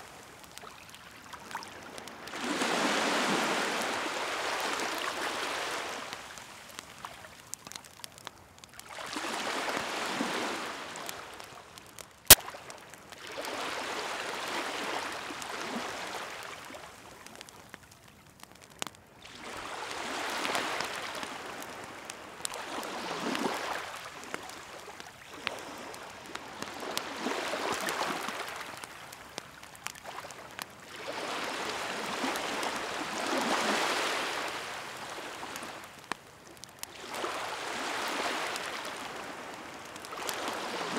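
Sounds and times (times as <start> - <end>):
wood fire crackling: 0.0 - 40.9
sea waves washing ashore: 1.5 - 7.1, 8.9 - 11.6, 13.2 - 16.8, 19.2 - 29.2, 30.0 - 35.9, 36.9 - 40.9.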